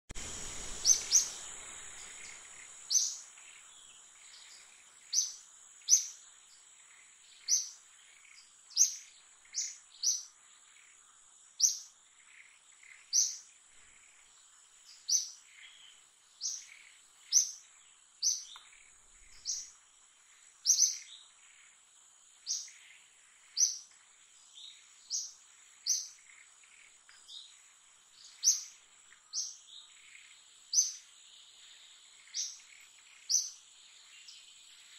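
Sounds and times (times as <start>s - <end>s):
bird chirping: 0.2s - 34.9s
faint high-pitched hum: 0.2s - 34.9s.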